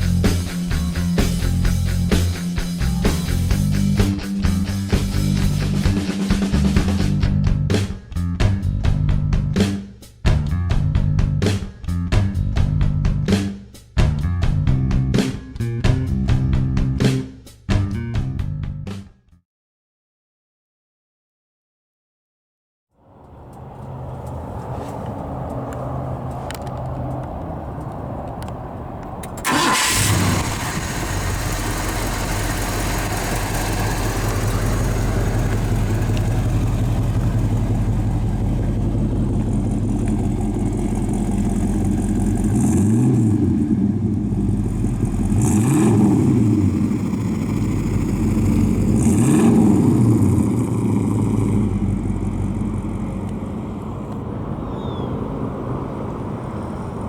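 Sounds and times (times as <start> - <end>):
engine revving: 23.0 - 54.4
car engine starting and idling: 23.0 - 57.0.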